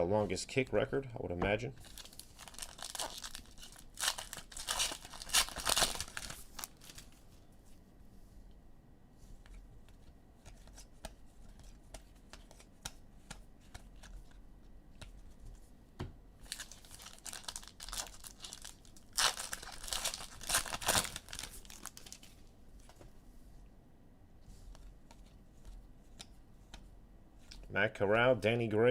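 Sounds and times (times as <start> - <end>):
foil wrapper crinkling and tearing: 1.8 - 7.1, 16.4 - 22.4.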